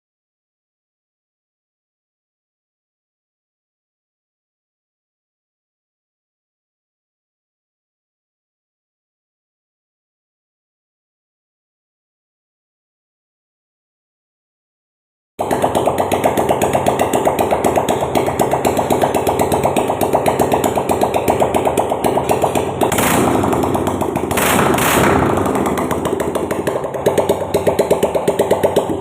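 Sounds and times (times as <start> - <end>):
motorcycle engine revving: 15.4 - 29.0.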